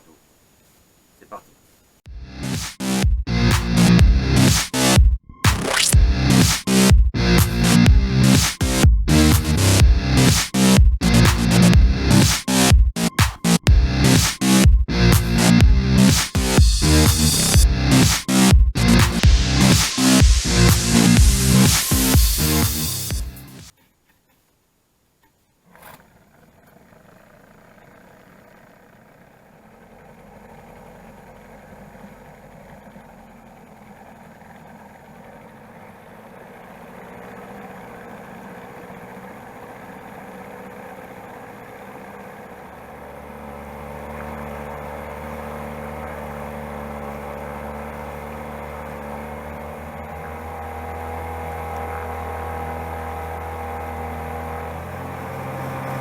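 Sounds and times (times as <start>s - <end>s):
motorboat engine humming: 2.1s - 23.7s, 26.7s - 56.0s
short sharp sound: 2.4s - 23.7s.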